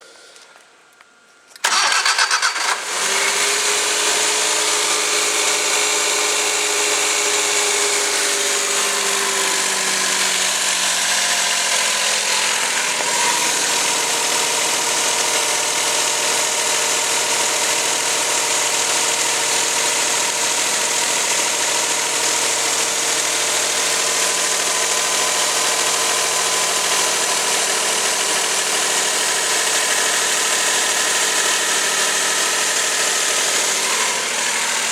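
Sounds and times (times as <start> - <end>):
engine starter cranking: 1.6 - 4.4
car engine idling: 1.6 - 34.9.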